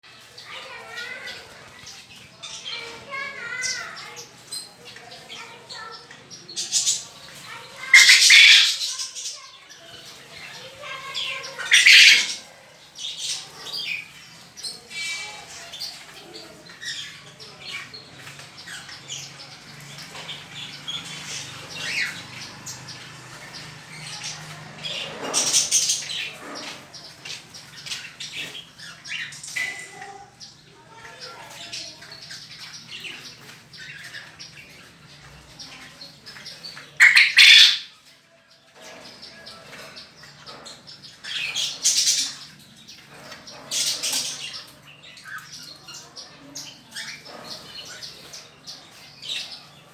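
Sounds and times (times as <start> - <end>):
birds splashing in water: 0.1 - 38.0.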